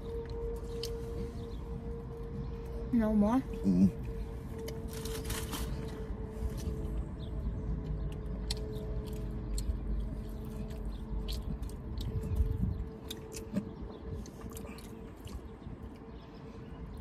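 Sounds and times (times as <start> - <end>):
low hum in car cabin: 0.0 - 17.0
person chewing: 7.8 - 16.0.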